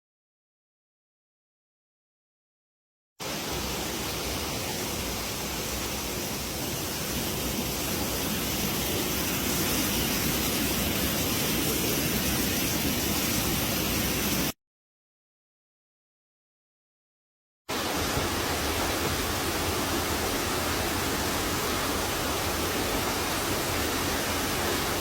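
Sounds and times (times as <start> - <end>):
waterfall rushing: 3.2 - 14.5, 17.7 - 25.0.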